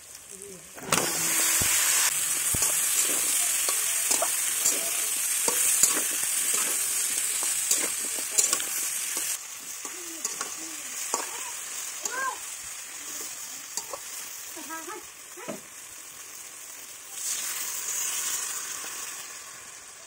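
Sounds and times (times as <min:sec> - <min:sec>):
food sizzling in hot oil: 0:00.0 - 0:20.0
metal spatula scraping pan: 0:02.5 - 0:09.4.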